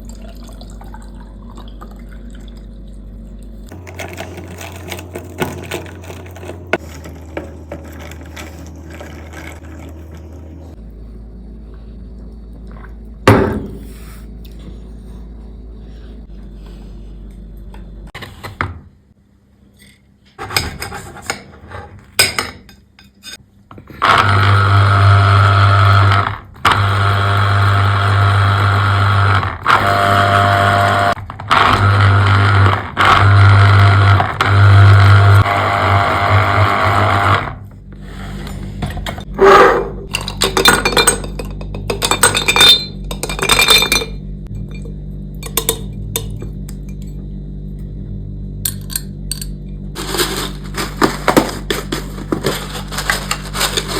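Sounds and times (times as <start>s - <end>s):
kitchen appliance motor running: 3.7s - 10.8s, 23.8s - 39.7s, 49.9s - 53.9s
glass clinking: 40.1s - 47.1s.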